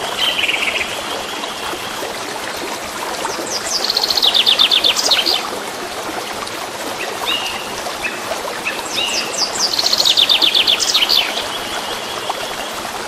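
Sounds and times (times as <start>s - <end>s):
stream rushing: 0.0s - 13.0s
birds singing: 3.3s - 5.4s, 7.0s - 12.8s.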